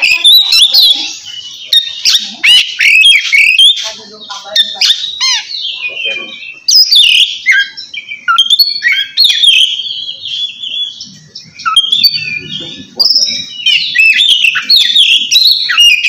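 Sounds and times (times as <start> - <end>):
bird singing whistles and trills: 0.0 - 3.9, 4.6 - 16.0.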